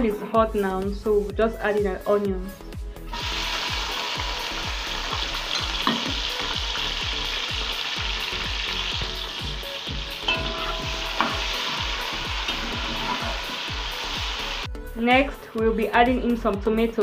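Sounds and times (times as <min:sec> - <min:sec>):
onions and leeks sizzling: 0:03.1 - 0:14.7.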